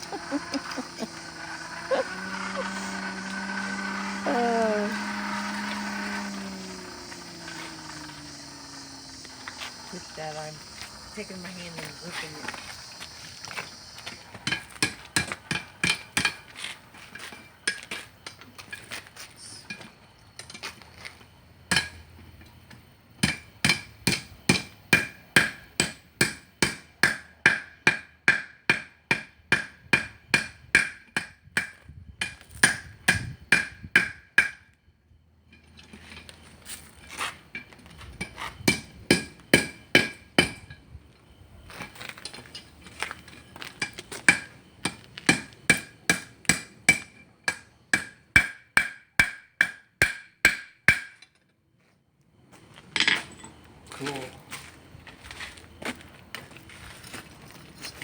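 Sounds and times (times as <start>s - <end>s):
hammer striking iron on anvil: 21.7s - 22.0s, 23.2s - 34.7s, 38.2s - 40.7s, 43.8s - 51.3s.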